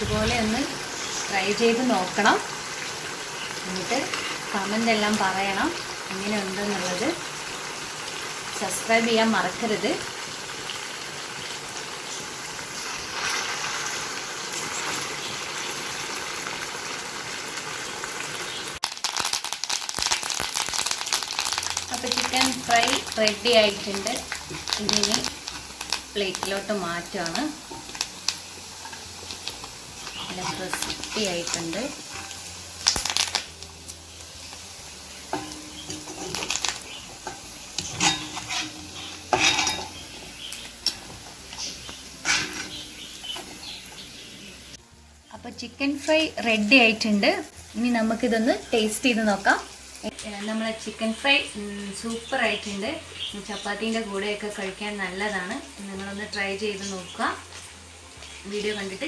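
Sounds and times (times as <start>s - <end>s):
chicken frying in oil: 0.0s - 59.0s
spoon scraping a frying pan: 4.0s - 4.5s, 22.3s - 26.6s, 27.2s - 33.4s, 34.4s - 44.7s.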